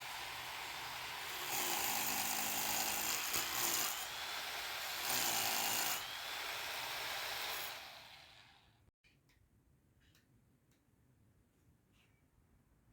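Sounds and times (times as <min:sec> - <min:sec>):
electric drill boring into concrete: 0:00.0 - 0:08.8.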